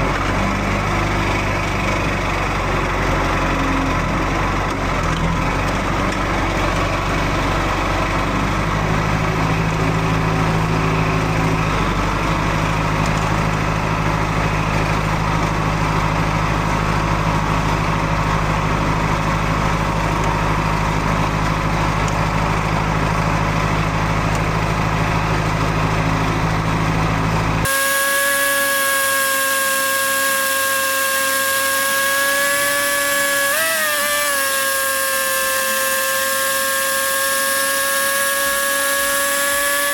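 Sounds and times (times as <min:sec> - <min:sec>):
tractor engine running: 0:00.0 - 0:39.9
high-pitched whine: 0:27.7 - 0:39.9.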